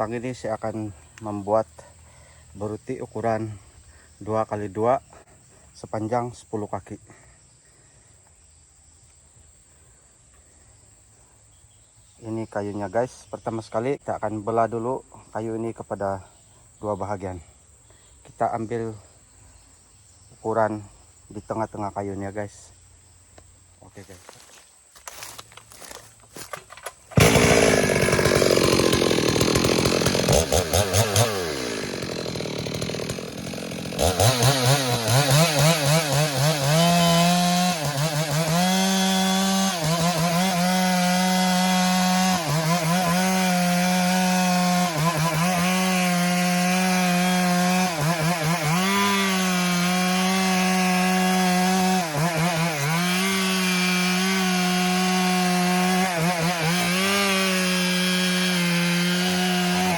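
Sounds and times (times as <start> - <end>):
chainsaw cutting a log: 25.0 - 59.9.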